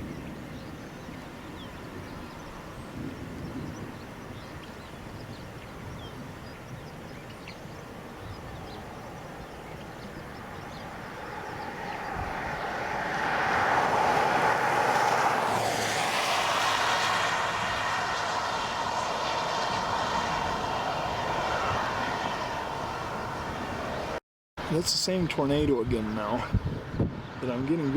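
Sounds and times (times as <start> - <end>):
vehicle passing by: 8.5 - 24.2.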